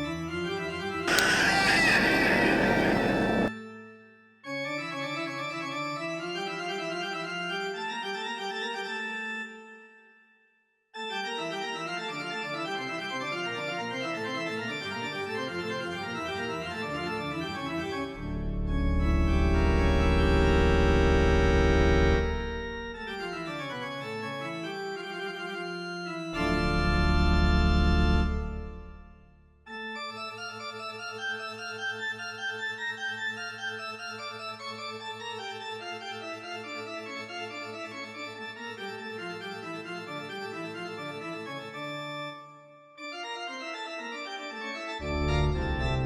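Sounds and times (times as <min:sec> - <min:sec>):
organ playing held chords: 0:01.1 - 0:03.5.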